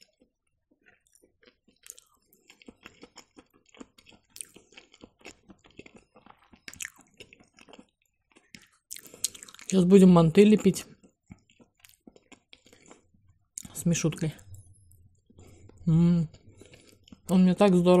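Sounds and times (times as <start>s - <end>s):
chewing mushrooms: 0.0s - 14.6s, 15.2s - 18.0s.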